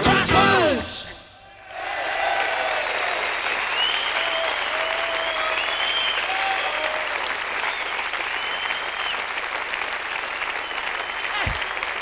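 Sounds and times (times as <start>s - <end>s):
audience applauding: 1.6s - 12.0s
whistles: 3.6s - 9.5s, 10.2s - 12.0s.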